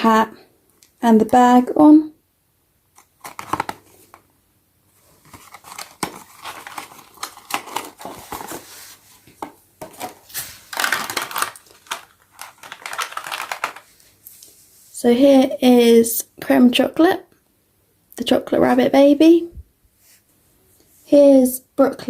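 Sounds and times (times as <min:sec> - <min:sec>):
cardboard and plastic rustling: 0:02.9 - 0:04.3, 0:04.9 - 0:14.5.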